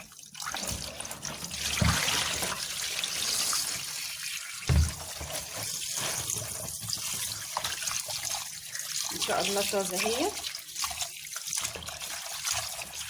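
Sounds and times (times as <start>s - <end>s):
tap water running into sink: 0.0s - 13.0s
dull knocks: 4.7s - 5.0s.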